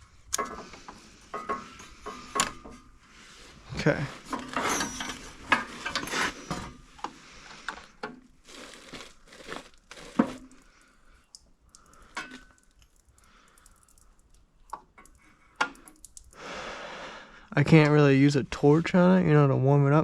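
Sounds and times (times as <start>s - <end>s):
tools clicking and knocking: 0.3s - 2.8s.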